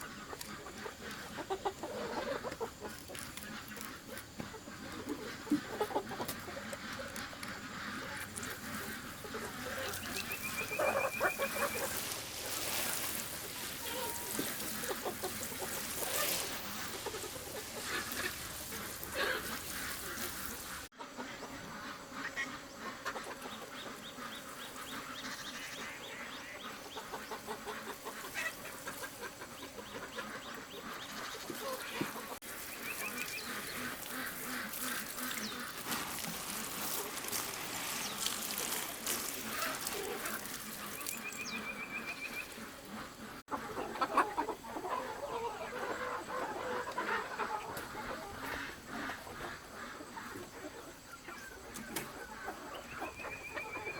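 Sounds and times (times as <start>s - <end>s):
ducks quacking: 0.0s - 53.9s
trilled bird call: 9.5s - 20.9s.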